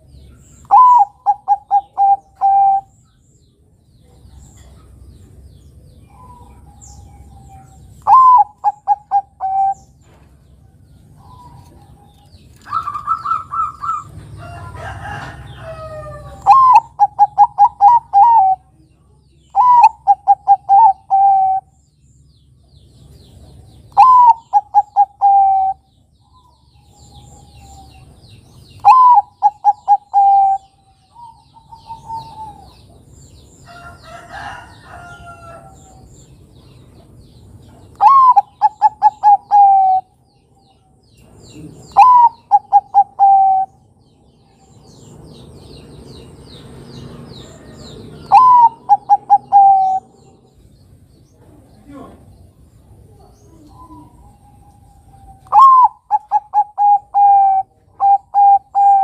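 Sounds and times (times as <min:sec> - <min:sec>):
faint high chirps of small birds: 0:00.0 - 0:59.0
doves cooing: 0:00.6 - 0:02.9, 0:06.0 - 0:10.2, 0:11.0 - 0:18.7, 0:19.6 - 0:21.8, 0:23.9 - 0:25.9, 0:28.8 - 0:33.1, 0:37.9 - 0:40.2, 0:41.5 - 0:43.8, 0:47.1 - 0:50.5, 0:51.8 - 0:59.0.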